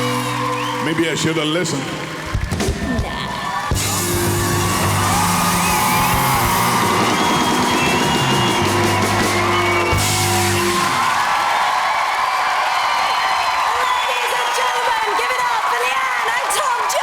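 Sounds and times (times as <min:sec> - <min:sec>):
live rock band playing: 0:00.0 - 0:01.4, 0:02.3 - 0:11.5
audience cheering and whooping: 0:00.0 - 0:17.0.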